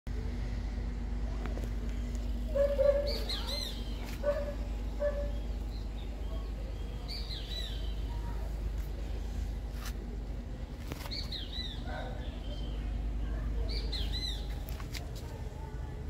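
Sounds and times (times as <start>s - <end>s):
steady low hum: 0.1s - 16.0s
birds chirping: 2.1s - 15.2s.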